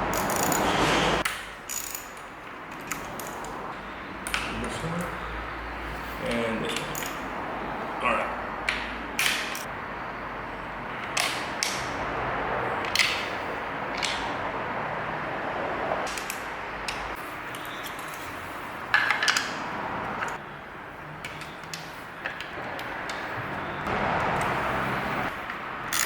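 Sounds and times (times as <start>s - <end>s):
steady background noise: 0.0s - 26.0s
metal clicks of hand tools: 6.7s - 7.2s.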